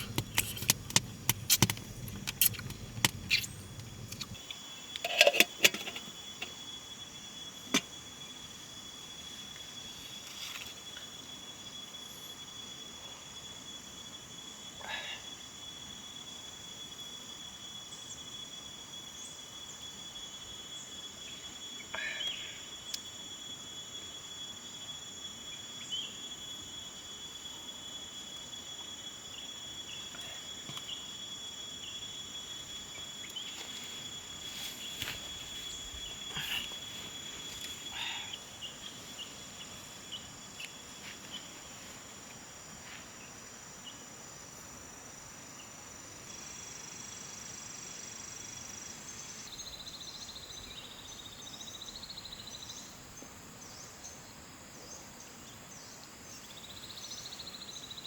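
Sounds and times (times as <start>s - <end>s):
sharp clicks and knocks: 0.0s - 4.4s
insects trilling: 0.0s - 58.0s.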